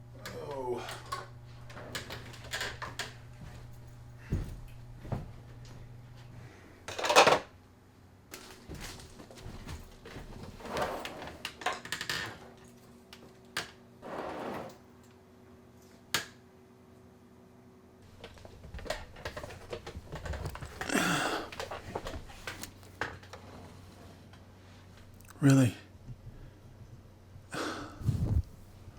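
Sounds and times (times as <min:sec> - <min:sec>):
short rustles: 0:28.0 - 0:28.9.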